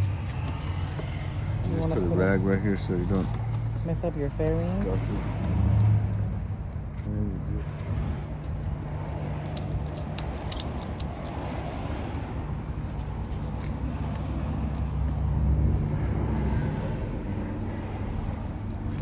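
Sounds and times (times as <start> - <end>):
metallic clicks and rattles of straps: 8.9 - 15.0.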